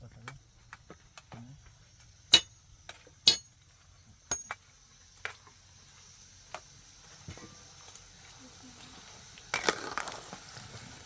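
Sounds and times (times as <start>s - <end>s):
metal hand tool striking: 2.3s - 2.6s, 3.2s - 3.6s, 4.3s - 4.6s.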